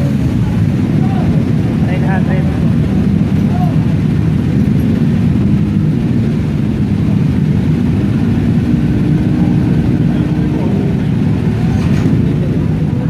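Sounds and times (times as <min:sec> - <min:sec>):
motorcycle engines rumbling: 0:00.0 - 0:13.0.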